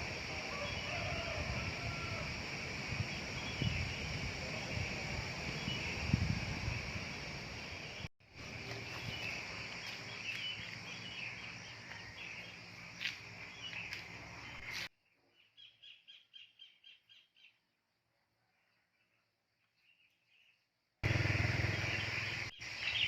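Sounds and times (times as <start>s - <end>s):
noisy open-air ambience: 0.0s - 23.0s.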